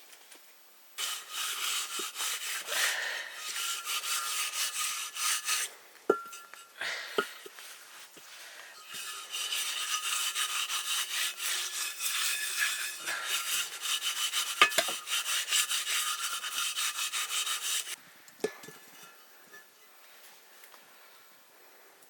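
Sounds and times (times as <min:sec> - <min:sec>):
scraping on a hard surface: 0:01.0 - 0:18.0.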